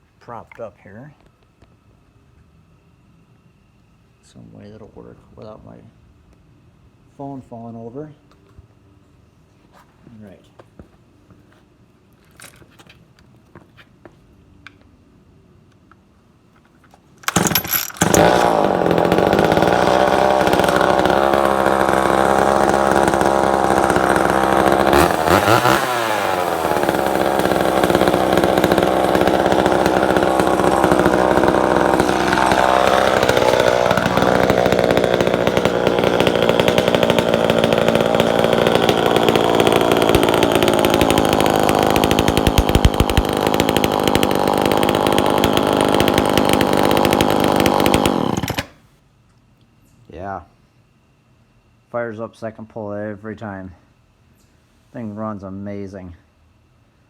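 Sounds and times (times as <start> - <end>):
chainsaw pull-start: 17.2 - 48.8
chainsaw running: 17.2 - 48.8.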